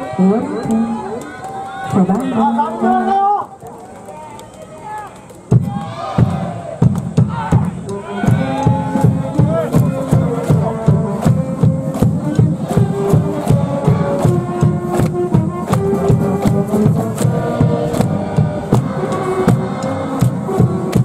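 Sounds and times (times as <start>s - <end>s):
steady drumbeat: 5.5s - 21.0s
band playing melody: 7.1s - 21.0s.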